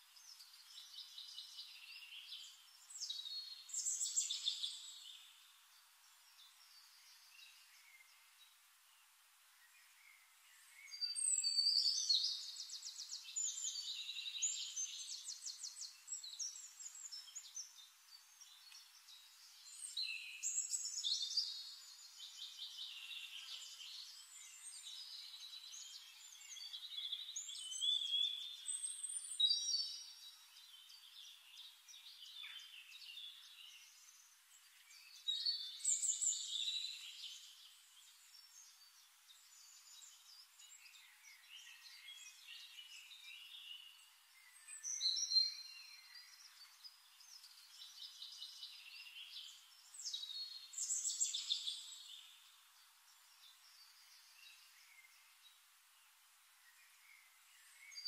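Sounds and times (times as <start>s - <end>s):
quiet bird twittering: 0.0s - 58.0s
songbirds chirping and trilling: 0.0s - 58.0s.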